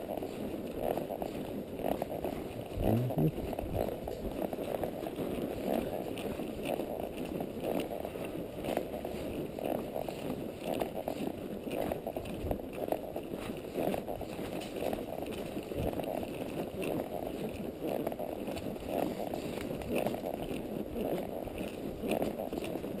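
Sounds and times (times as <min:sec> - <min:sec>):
horse hooves on dirt: 0:00.0 - 0:23.0.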